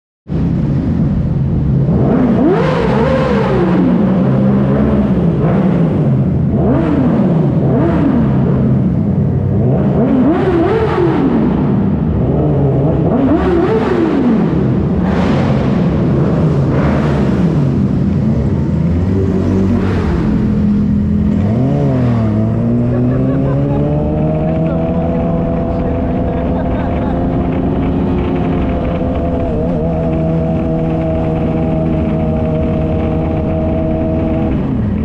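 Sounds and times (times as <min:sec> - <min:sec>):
motorcycle engines revving: 0:00.4 - 0:35.0.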